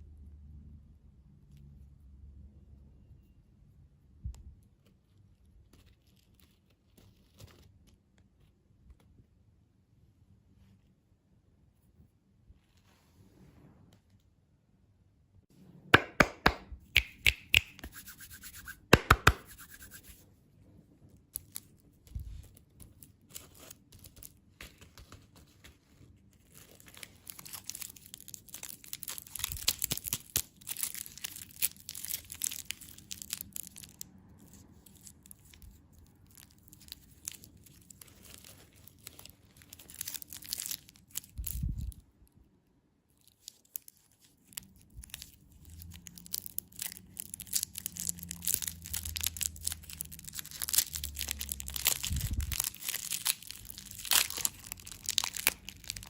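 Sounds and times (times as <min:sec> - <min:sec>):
sharp clicks and taps: 0:16.0 - 0:20.1
plastic packaging crinkling: 0:21.4 - 0:42.0, 0:43.2 - 0:56.0.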